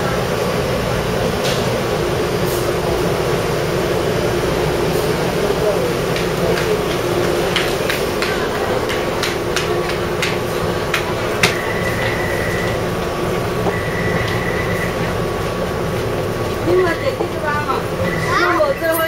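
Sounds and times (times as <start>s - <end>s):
steady high whine: 0.0s - 19.0s
train running noise with hum: 0.0s - 19.0s.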